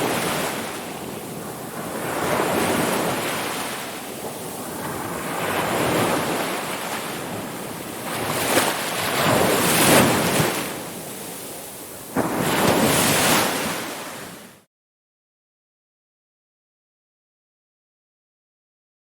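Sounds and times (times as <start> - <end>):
ocean waves washing up shore: 0.0 - 14.7
wave crashing: 0.0 - 14.7.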